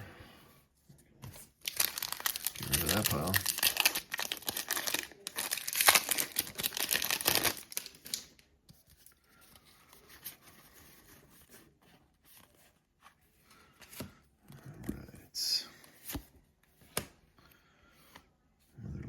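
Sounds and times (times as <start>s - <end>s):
plastic wrapper crinkling and tearing: 1.6s - 8.5s
soft handling noises: 8.6s - 18.8s.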